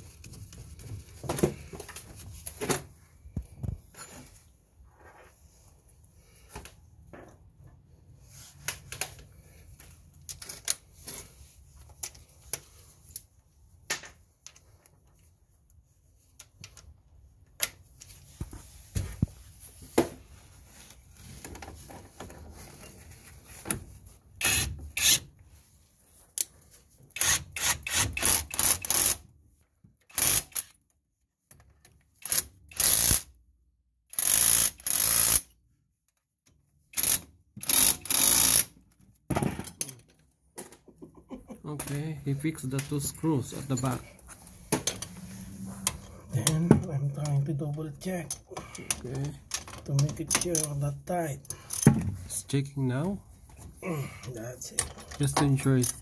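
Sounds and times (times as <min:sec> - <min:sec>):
short rattling bursts of tool: 0:24.4 - 0:25.2, 0:27.2 - 0:29.2, 0:30.1 - 0:30.7, 0:32.2 - 0:33.3, 0:34.1 - 0:35.5, 0:36.9 - 0:38.7.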